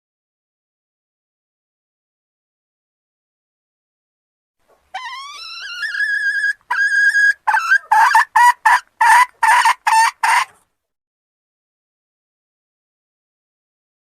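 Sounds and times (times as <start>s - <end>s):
hen calling and clucking: 4.7s - 10.6s.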